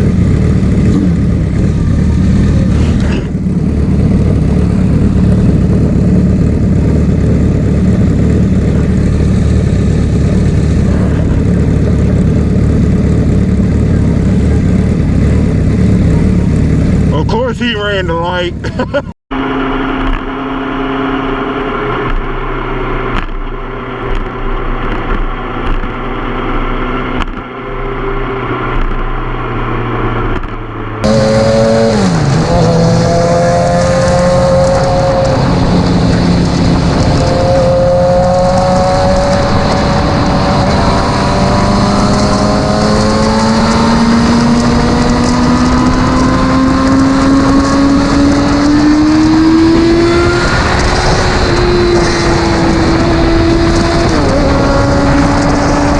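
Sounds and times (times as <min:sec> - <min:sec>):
motorcycle engine running: 0:00.0 - 0:55.9
wind noise on microphone: 0:31.0 - 0:55.9.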